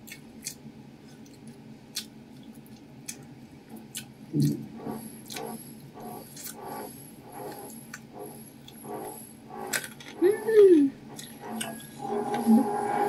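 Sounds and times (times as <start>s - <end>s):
chewing food: 0.0s - 4.2s
closed-mouth hum: 3.7s - 13.0s.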